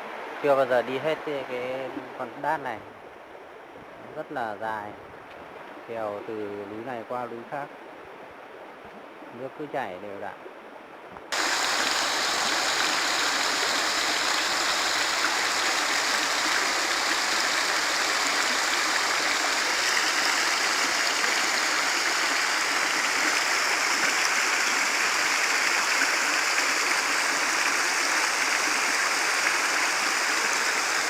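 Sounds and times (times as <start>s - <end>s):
stream rushing over rocks: 11.3s - 31.0s.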